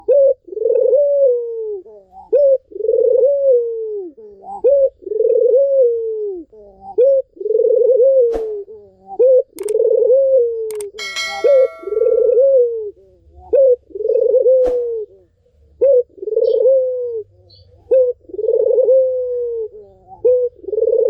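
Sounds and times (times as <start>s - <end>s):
dove cooing: 0.0s - 21.0s.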